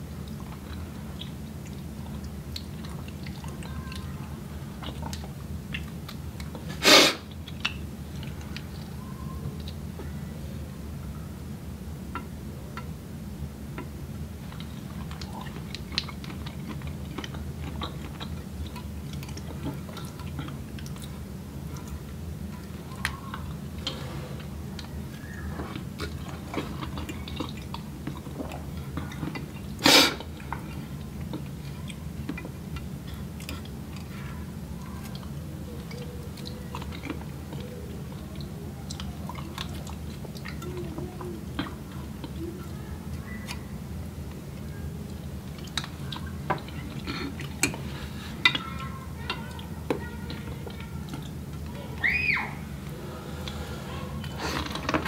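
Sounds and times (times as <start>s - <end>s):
chewing and mouth sounds: 0.1s - 10.2s, 13.7s - 52.1s.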